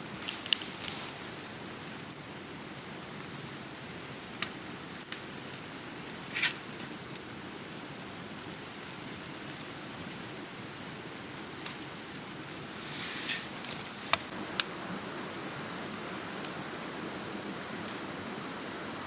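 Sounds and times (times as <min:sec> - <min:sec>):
campfire coals popping: 0:00.0 - 0:07.6, 0:10.1 - 0:14.7.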